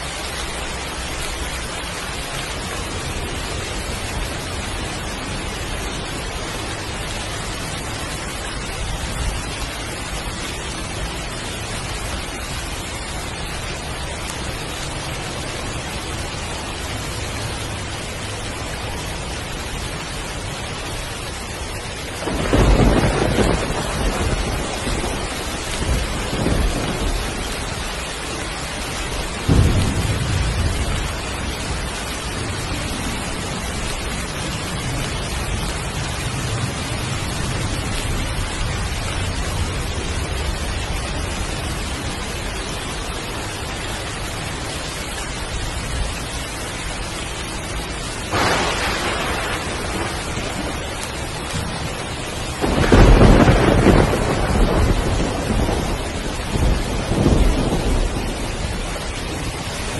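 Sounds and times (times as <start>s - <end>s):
heavy rain pouring: 0.0s - 59.9s
thunder: 22.2s - 27.9s, 29.2s - 40.9s, 48.3s - 59.7s.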